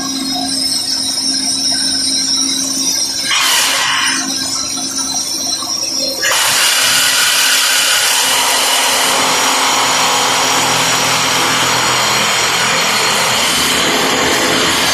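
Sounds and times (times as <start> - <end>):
rock drill drilling through rock: 3.2 - 4.4, 6.2 - 14.9.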